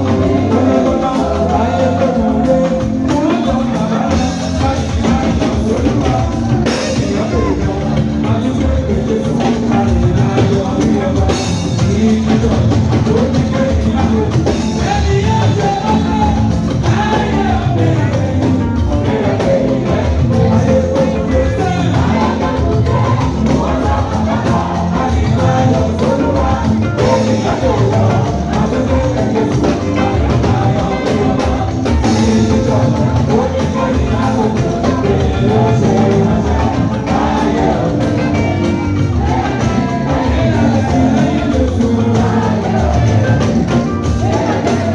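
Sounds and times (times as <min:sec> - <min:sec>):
choir singing: 0:00.0 - 0:44.9
drum kit beat: 0:00.0 - 0:44.9
live band playing: 0:00.0 - 0:44.9.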